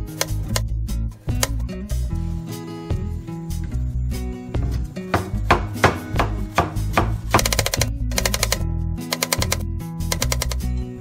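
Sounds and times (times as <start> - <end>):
background music: 0.0 - 11.0
cleaver chopping on wooden board: 5.1 - 7.6.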